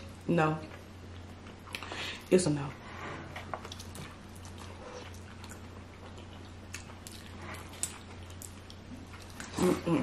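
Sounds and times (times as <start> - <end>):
low steady hum: 0.0 - 10.0
chewing food: 3.4 - 10.0.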